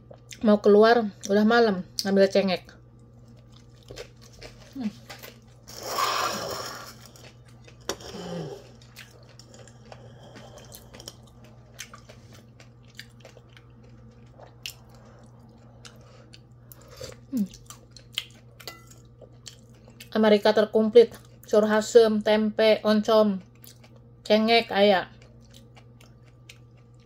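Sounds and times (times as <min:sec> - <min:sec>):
person chewing and eating: 0:02.9 - 0:20.1, 0:23.4 - 0:24.1, 0:25.1 - 0:27.0.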